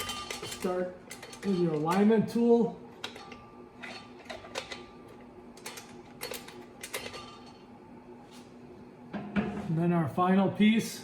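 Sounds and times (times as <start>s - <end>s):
metal clutch parts clinking: 0.0s - 2.1s.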